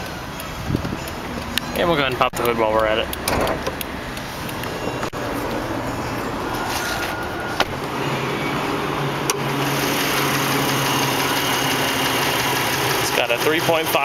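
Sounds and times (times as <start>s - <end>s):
car engine idling: 0.0s - 14.0s
hood latch clicks: 2.4s - 4.6s.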